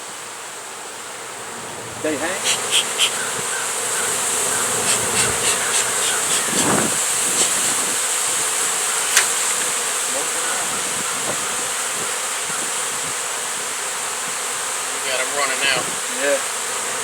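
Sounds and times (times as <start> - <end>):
bees buzzing: 0.0 - 17.0
sharp clicks: 9.1 - 9.7.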